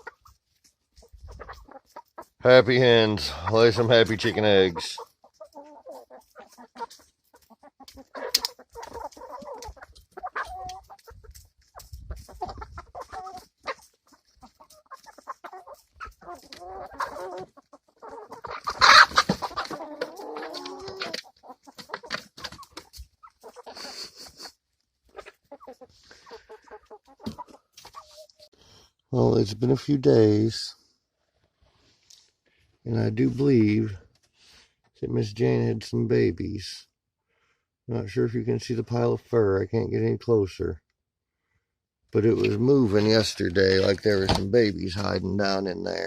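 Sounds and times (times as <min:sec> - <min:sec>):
hens clucking: 0:00.0 - 0:28.6, 0:42.2 - 0:46.0.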